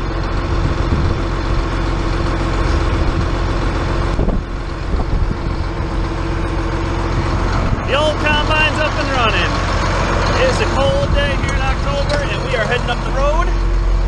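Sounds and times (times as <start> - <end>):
diesel engine rumble: 0.0 - 14.0
steady whine: 0.0 - 14.0.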